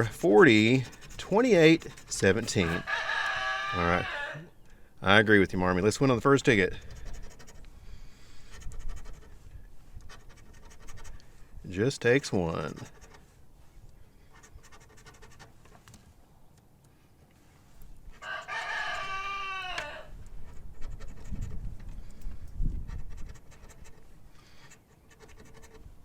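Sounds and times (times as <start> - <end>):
coin scratching a ticket: 0.0 - 3.4, 6.1 - 7.6, 8.4 - 9.4, 10.0 - 11.2, 12.0 - 13.3, 14.2 - 15.7, 20.4 - 21.9, 22.8 - 26.0
rooster crowing: 2.6 - 4.5, 18.2 - 20.2.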